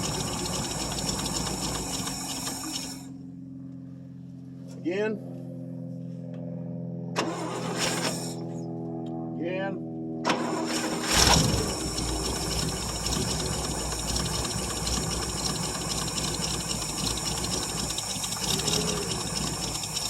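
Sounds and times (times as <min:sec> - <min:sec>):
pickup engine running roughly: 0:00.0 - 0:03.2, 0:10.3 - 0:20.0.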